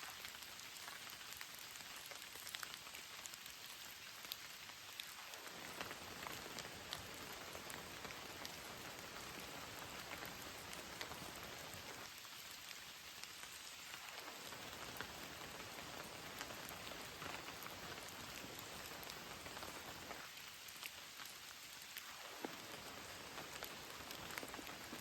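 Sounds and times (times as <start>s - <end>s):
raindrops ticking: 0.1s - 25.0s
heavy rain hissing: 5.1s - 12.2s, 13.9s - 25.0s.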